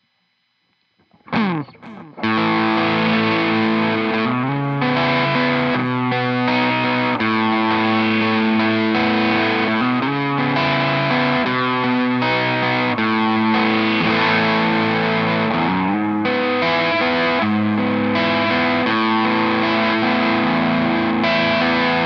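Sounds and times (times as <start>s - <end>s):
distorted electric guitar riff: 1.0s - 22.0s.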